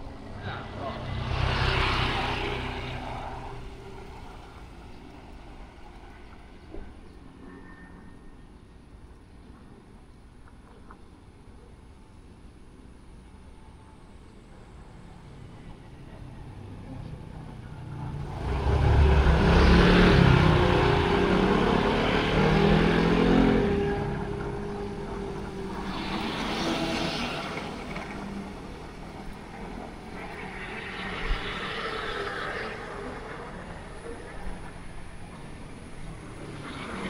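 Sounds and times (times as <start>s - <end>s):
passing traffic: 0.0s - 9.6s, 13.5s - 37.0s
vehicle passing close by: 0.2s - 5.1s, 16.5s - 34.8s.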